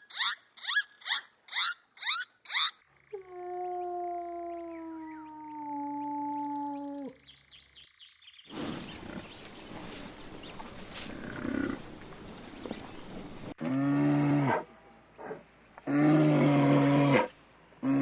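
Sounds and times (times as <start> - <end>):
high repeated animal chirps: 0.0 - 2.8
rough noisy animal sound: 8.5 - 18.0.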